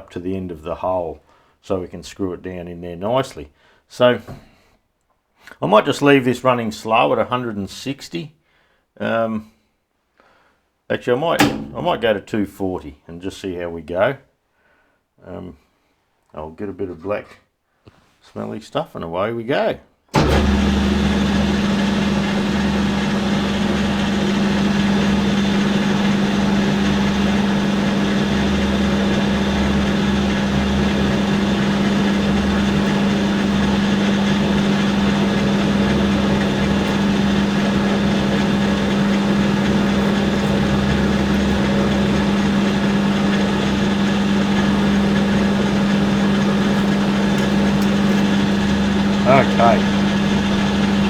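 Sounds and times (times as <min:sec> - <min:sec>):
lathe motor and gear hum: 0:11.4 - 0:12.1, 0:20.2 - 0:51.0
end mill cutting metal: 0:11.4 - 0:12.2, 0:20.2 - 0:51.0.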